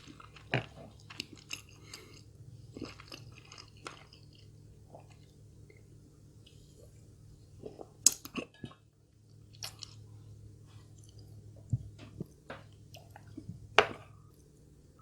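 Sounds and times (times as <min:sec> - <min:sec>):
person chewing food: 0:00.0 - 0:05.8, 0:09.5 - 0:10.2.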